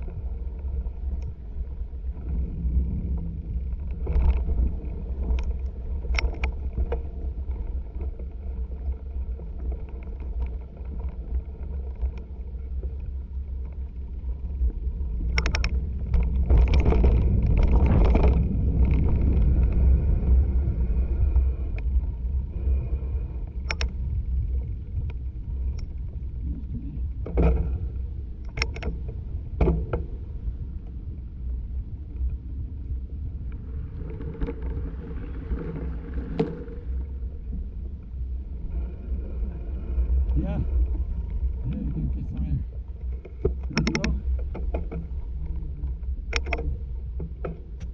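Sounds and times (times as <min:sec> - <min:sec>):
wind and tyre rumble: 0:00.0 - 0:47.9.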